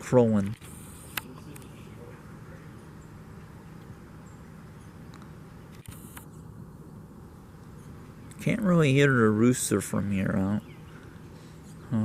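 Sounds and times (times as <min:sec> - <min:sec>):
camera click with hiss: 0:00.4 - 0:01.7, 0:05.1 - 0:06.4.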